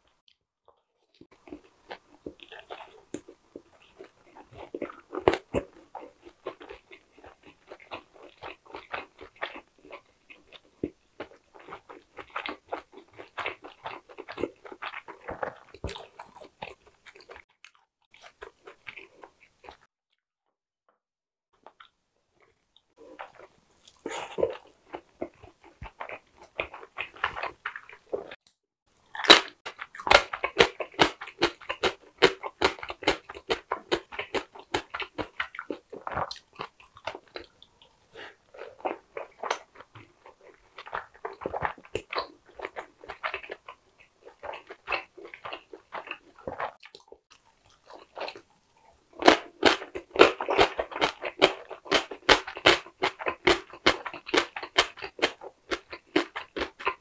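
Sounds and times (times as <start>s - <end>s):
wet chewing mouth sounds: 1.0s - 19.9s, 21.6s - 28.5s, 29.1s - 57.0s.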